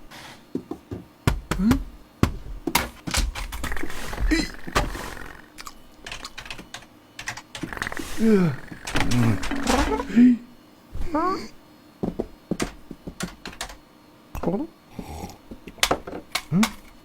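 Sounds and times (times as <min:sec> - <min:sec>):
short vocal sounds: 0:07.8 - 0:10.5
quick irregular clicks and taps: 0:12.2 - 0:13.8.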